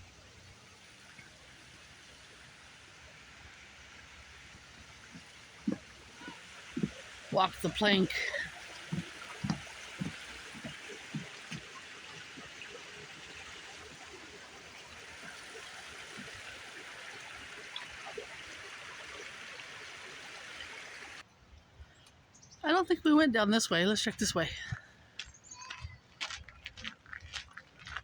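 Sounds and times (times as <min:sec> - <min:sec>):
stream water running: 0:00.0 - 0:21.3, 0:23.1 - 0:24.8
soft footsteps: 0:04.5 - 0:13.4.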